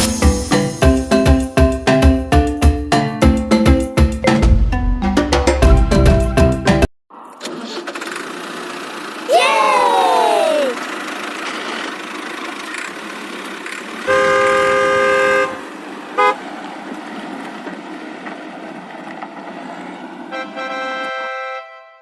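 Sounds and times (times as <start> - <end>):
cartoon vehicle horn honks: 14.1 - 15.6.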